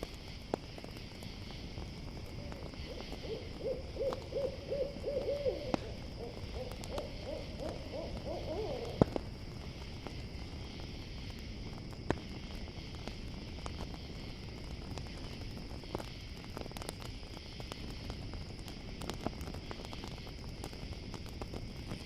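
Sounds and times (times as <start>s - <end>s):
campfire popping: 0.0s - 22.0s
crickets chirring: 0.0s - 22.0s
owl hooting: 2.4s - 9.1s.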